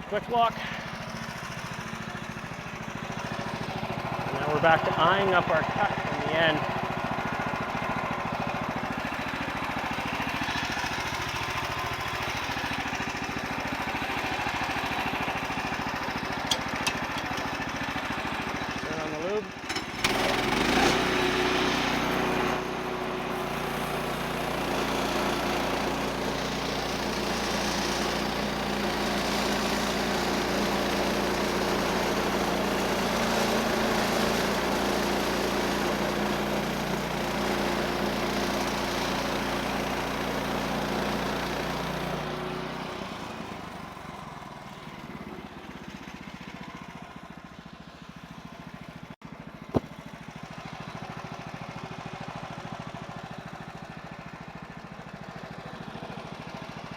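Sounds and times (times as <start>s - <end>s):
sawmill engine running: 0.0s - 56.9s
band blade cutting log: 49.7s - 50.0s.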